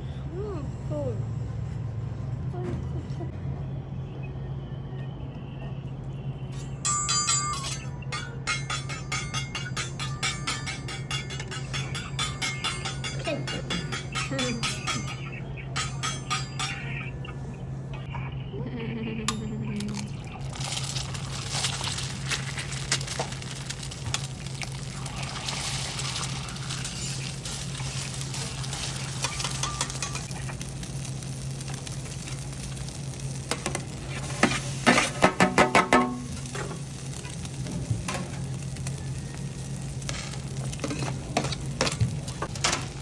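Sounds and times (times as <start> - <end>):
steady low hum: 0.0 - 43.0
sharp metal clacks: 6.6 - 17.1
food sizzling on a griddle: 20.5 - 43.0.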